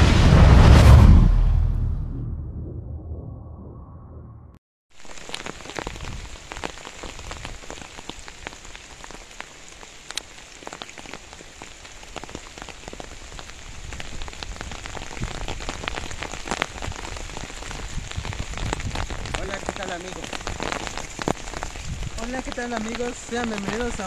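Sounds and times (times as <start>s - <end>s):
steady rain falling: 5.0s - 24.0s.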